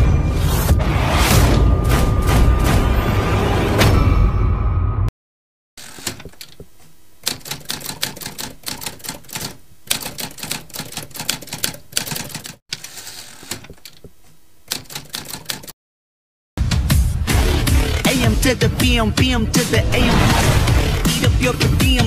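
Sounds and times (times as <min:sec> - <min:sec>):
typewriter key clicks: 0:07.2 - 0:12.6, 0:14.7 - 0:15.7.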